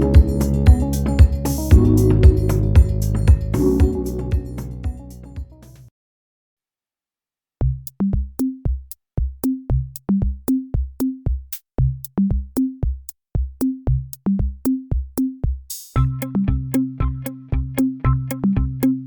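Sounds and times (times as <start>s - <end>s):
electronic drum-machine beat: 0.0s - 5.6s, 7.6s - 19.0s
punchy bass notes: 0.0s - 5.9s, 7.6s - 8.4s, 9.7s - 10.3s, 11.8s - 12.2s, 13.9s - 14.2s, 16.0s - 19.0s.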